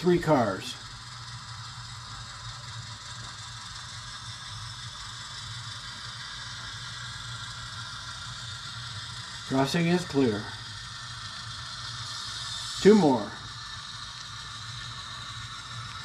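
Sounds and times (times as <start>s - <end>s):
light mechanical rattle: 0.0s - 16.0s
model locomotive humming: 0.0s - 16.0s.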